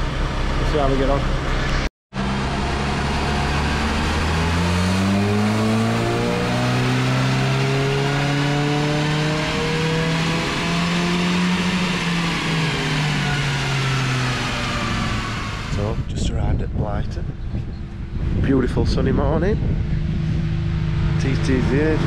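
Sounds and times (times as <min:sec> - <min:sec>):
diesel engine revving under load: 0:02.2 - 0:16.1.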